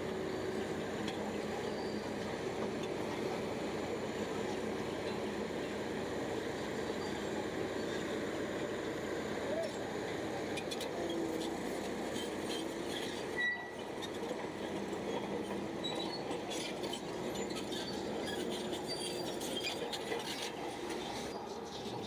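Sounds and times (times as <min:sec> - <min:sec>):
bulldozer engine running: 0:00.0 - 0:22.0
short high squeak: 0:13.0 - 0:13.8.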